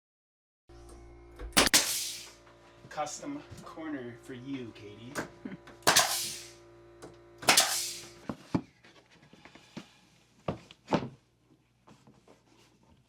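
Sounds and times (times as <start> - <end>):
nail gun firing into wood: 1.6 - 2.3, 5.8 - 6.5, 7.4 - 8.1
hiss of exhaust air: 1.6 - 2.4, 5.9 - 6.6, 7.5 - 8.2.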